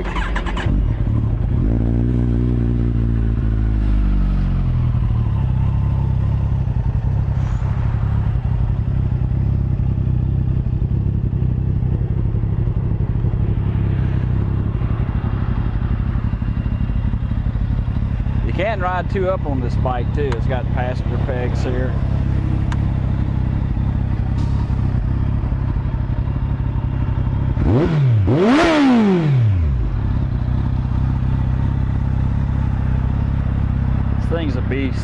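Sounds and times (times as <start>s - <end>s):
motorcycle engine revving and idling: 0.0s - 35.0s.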